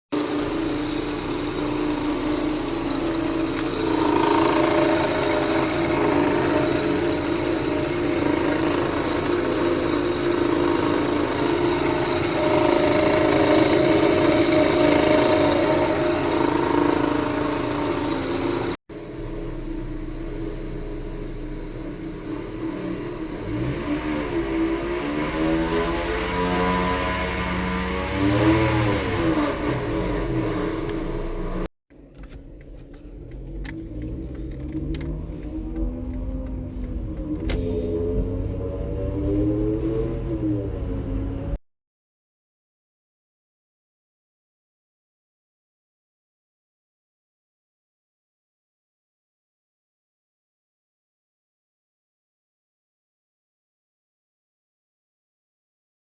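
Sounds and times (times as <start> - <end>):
car engine whining: 0.1 - 41.6.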